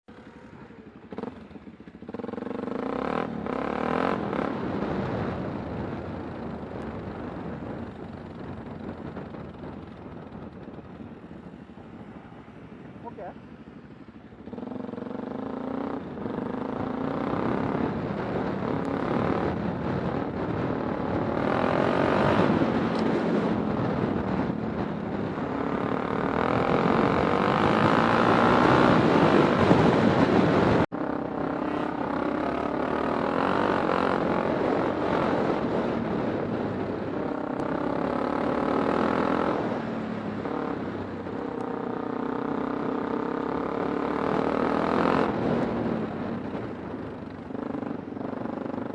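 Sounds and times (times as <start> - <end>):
road noise: 0.0 - 48.9
motorcycle engine revving: 0.1 - 48.9
wind noise: 2.8 - 48.9.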